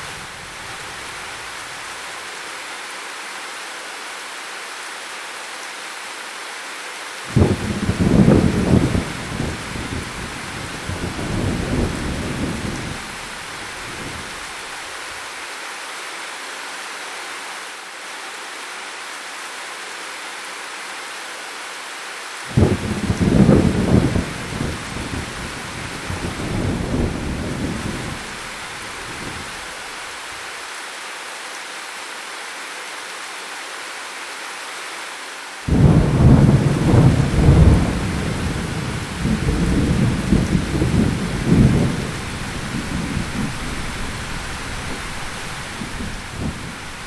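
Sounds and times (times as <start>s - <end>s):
heavy rain: 0.0s - 47.0s
thunder rumbling: 7.3s - 14.5s, 22.5s - 29.7s, 35.7s - 47.0s.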